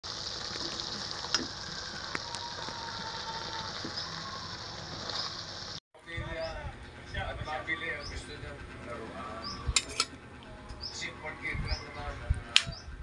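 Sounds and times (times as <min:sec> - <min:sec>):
food sizzling in a wok: 0:00.0 - 0:05.8.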